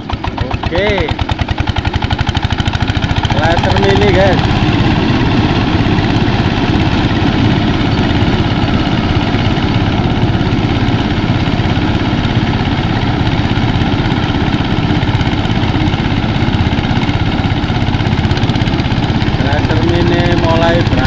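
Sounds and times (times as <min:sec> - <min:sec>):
rice thresher engine drone: 0:00.0 - 0:21.0.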